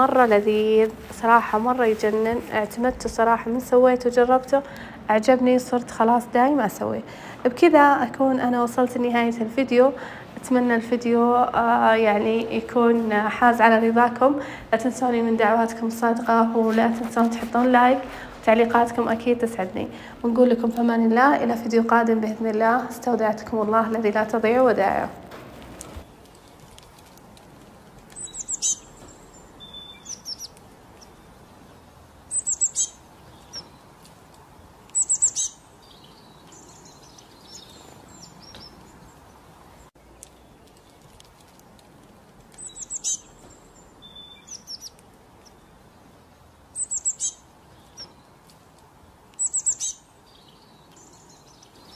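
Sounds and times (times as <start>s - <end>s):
small birds chirping: 25.8s - 51.9s.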